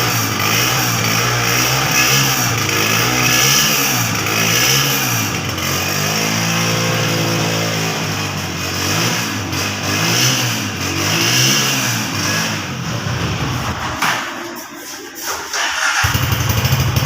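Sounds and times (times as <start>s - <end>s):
motorcycle engine revving: 0.0s - 14.0s, 15.6s - 17.0s.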